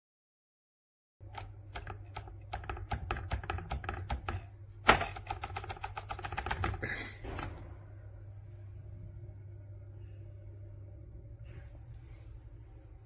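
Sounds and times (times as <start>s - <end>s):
rapid small clicks and taps: 1.2s - 7.5s.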